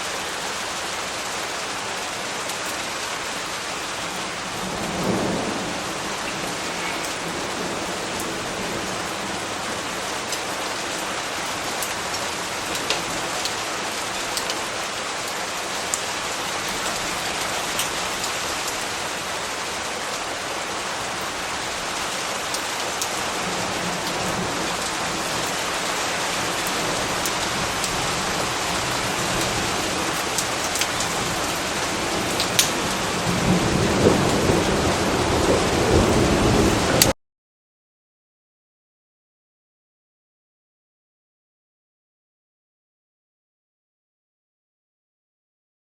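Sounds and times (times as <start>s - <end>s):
steady rain falling: 0.0s - 37.2s
low thunder rumble: 4.1s - 11.0s, 23.3s - 37.0s.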